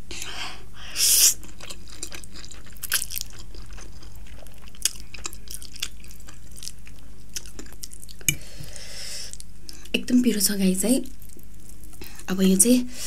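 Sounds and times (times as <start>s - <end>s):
wet chewing of noodles: 1.2s - 9.9s.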